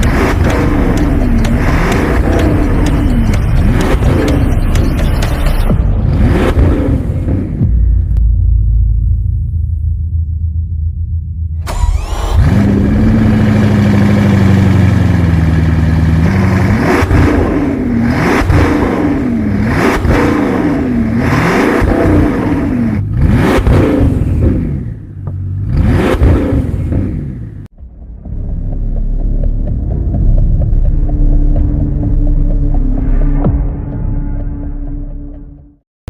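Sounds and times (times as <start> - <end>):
car engine revving: 0.0 - 8.2, 11.6 - 31.4.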